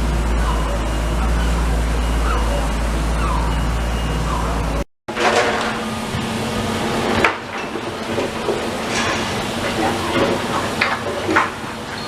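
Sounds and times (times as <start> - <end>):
low engine rumble: 0.0 - 12.0
clattering rubble and metal: 5.1 - 12.0.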